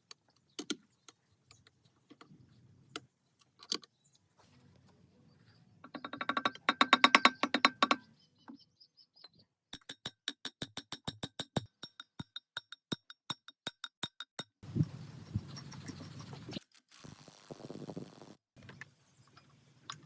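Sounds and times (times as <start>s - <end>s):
sharp metallic clicks: 5.8s - 8.0s.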